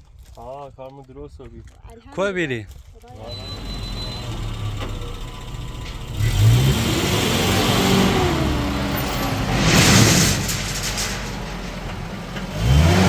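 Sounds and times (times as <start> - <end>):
vehicle engine revving: 3.2 - 13.0
rushing hiss: 7.3 - 12.4.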